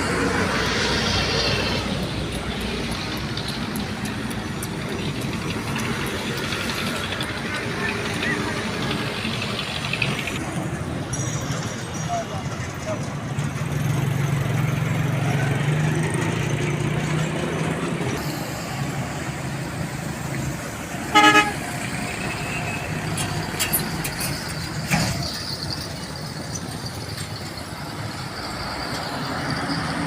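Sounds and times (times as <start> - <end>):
road traffic engine drone: 0.0 - 30.0
short vehicle horn blast: 21.1 - 21.6.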